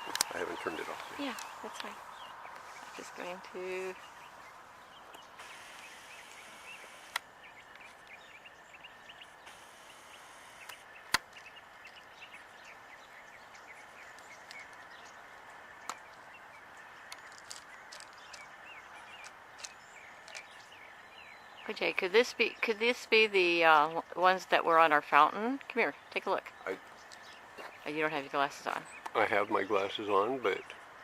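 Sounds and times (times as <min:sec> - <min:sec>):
small birds chirping: 0:00.0 - 0:31.0
sharp clicks: 0:05.1 - 0:08.2, 0:09.5 - 0:11.5.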